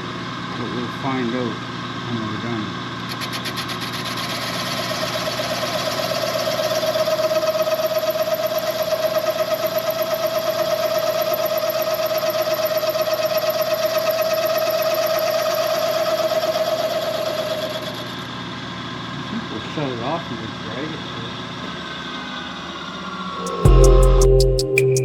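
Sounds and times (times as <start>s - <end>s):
boring cutter whining through metal: 2.9s - 19.0s.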